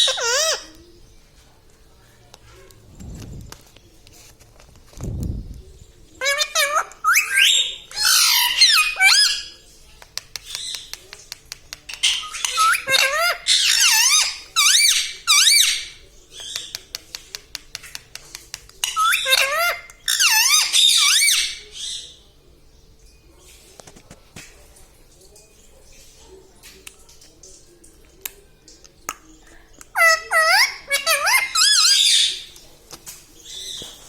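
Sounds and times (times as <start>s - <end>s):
parrot chattering and squawking: 0.0s - 0.7s, 6.2s - 9.5s, 11.8s - 16.7s, 18.8s - 22.1s, 29.8s - 32.5s.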